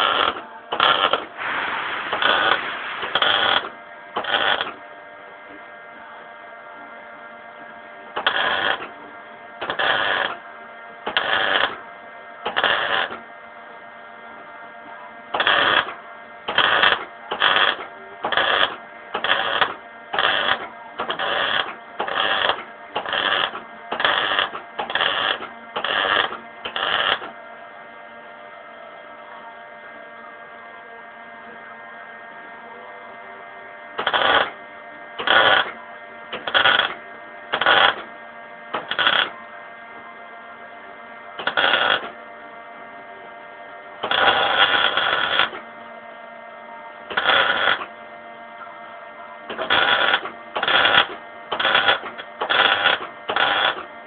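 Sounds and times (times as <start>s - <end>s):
electrical hum: 0.0s - 54.0s
welder hissing bursts: 1.4s - 3.6s.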